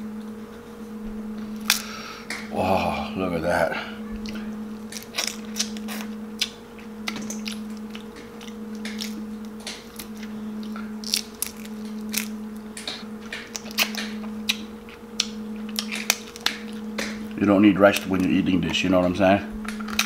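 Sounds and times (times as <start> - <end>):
steady low hum: 0.0 - 20.0
crab shell cracking: 1.6 - 2.5, 4.3 - 18.8
wet chewing and mouth smacking: 4.2 - 17.4.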